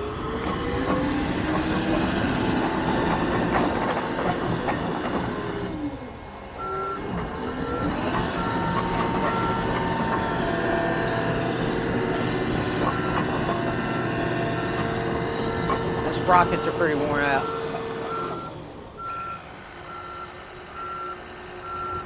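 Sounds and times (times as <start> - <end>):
diesel engine running: 0.0 - 22.0
backup alarm beeping: 16.1 - 20.2.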